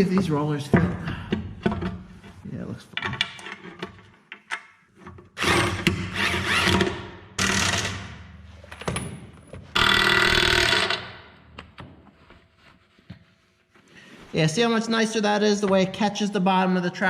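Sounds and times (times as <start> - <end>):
impact wrench bursts: 9.8 - 11.2.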